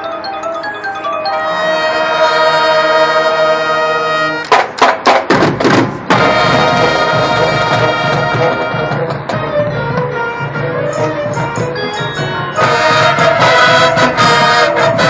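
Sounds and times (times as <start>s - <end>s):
winds and brass chord: 0.0s - 4.5s, 6.1s - 15.0s
loud percussion hits: 4.4s - 15.0s.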